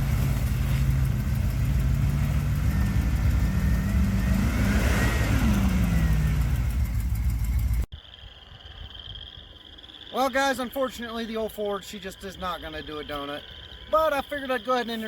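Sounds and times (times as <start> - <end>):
pickup truck engine revving: 0.0 - 7.9.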